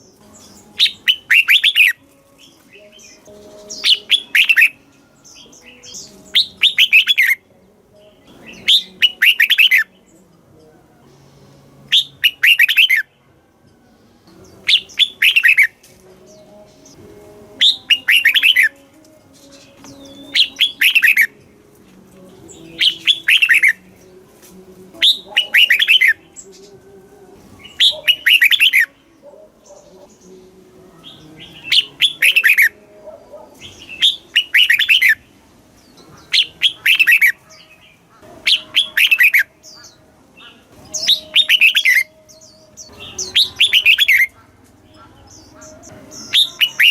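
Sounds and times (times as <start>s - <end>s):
bird singing warbling phrases: 0.0s - 13.3s, 14.2s - 46.9s.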